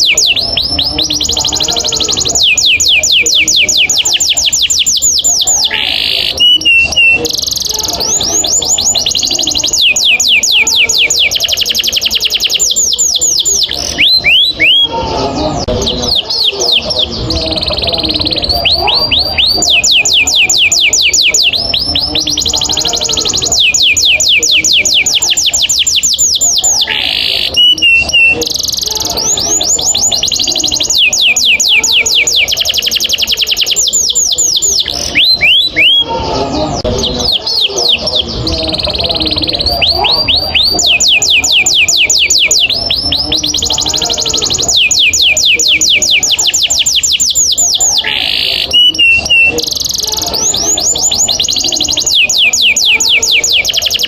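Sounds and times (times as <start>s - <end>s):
canary trilling song: 0.0s - 54.0s.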